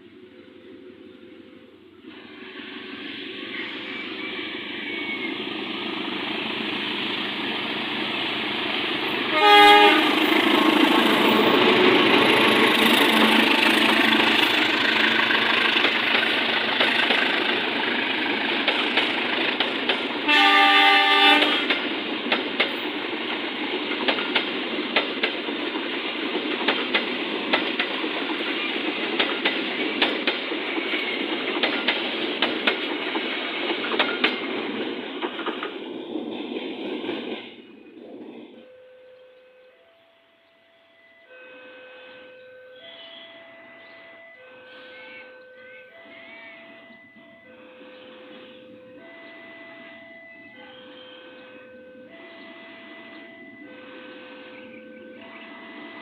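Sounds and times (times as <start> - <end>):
train passing: 0.0 - 56.0
wheels clicking over rail joints: 6.6 - 37.6
locomotive horn blasts: 9.3 - 11.5, 13.0 - 14.5, 20.2 - 21.8, 41.3 - 43.4, 52.4 - 56.0.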